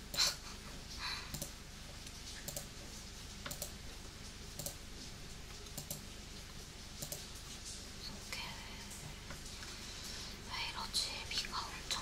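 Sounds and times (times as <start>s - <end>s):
keyboard and mouse clicks: 1.3s - 2.7s, 3.4s - 3.8s, 4.6s - 4.8s, 5.6s - 6.0s, 7.0s - 7.2s.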